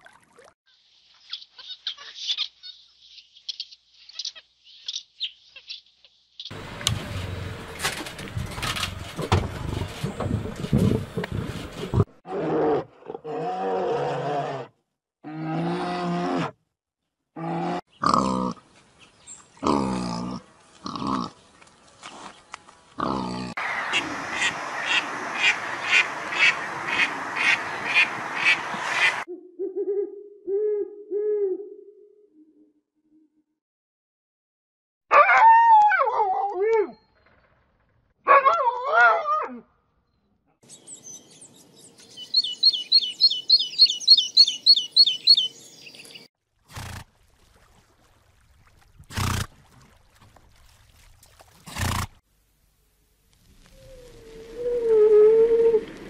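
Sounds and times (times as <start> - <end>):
owl hooting: 42.3 - 45.5.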